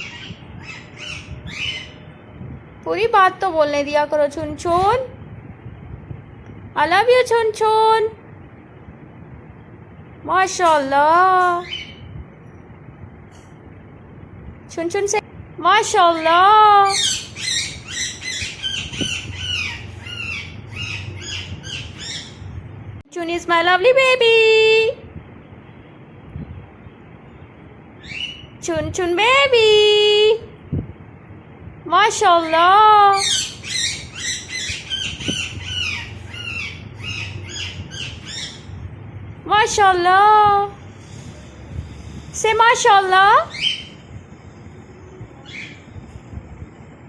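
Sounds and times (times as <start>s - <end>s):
baby parrot squawking: 16.8s - 22.4s, 33.1s - 38.7s.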